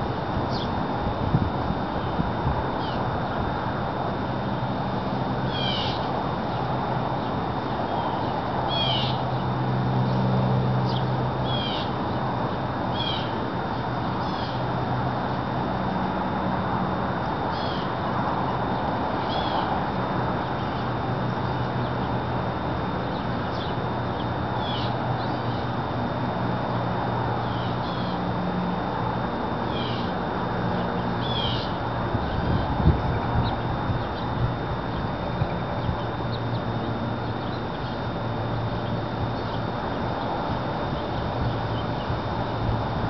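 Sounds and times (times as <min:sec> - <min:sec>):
small bird chirping: 0:07.9 - 0:09.4, 0:23.1 - 0:25.7, 0:30.8 - 0:42.2.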